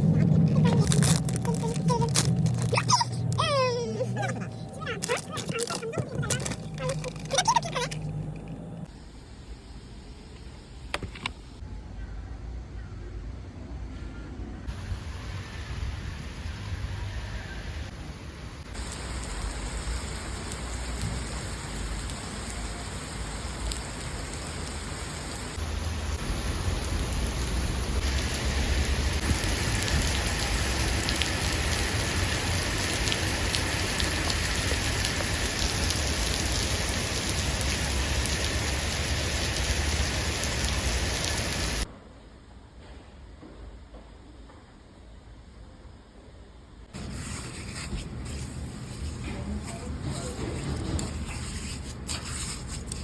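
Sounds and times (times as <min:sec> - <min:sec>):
steady rain: 0:14.7 - 0:41.9.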